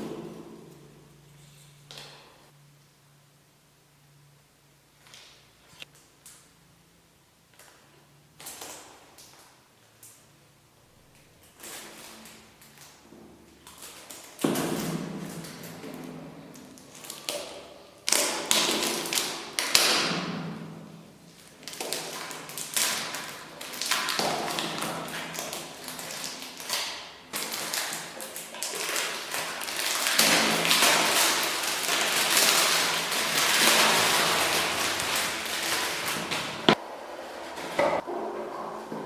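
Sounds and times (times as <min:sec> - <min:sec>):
packaging rustling and scraping: 0:27.4 - 0:38.0.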